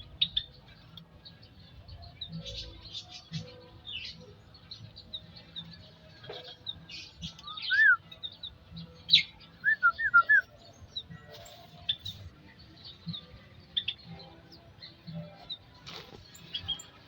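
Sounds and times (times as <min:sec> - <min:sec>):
small birds chirping: 0:00.0 - 0:17.0
whistled bird notes: 0:07.0 - 0:10.7.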